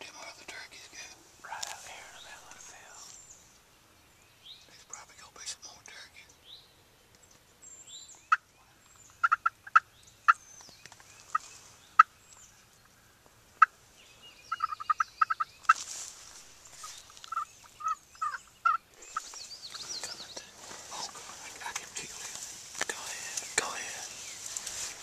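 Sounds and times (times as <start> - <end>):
songbirds chirping faintly: 0.0 - 25.0
wild turkeys calling: 8.1 - 25.0.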